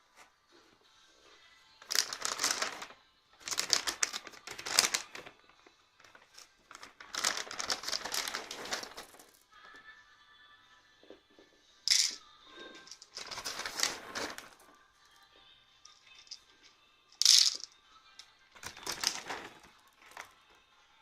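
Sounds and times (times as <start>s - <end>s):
dry cat food rattling into bowls: 1.8s - 5.3s, 6.0s - 9.4s, 11.9s - 14.6s, 17.2s - 17.7s, 18.6s - 20.3s.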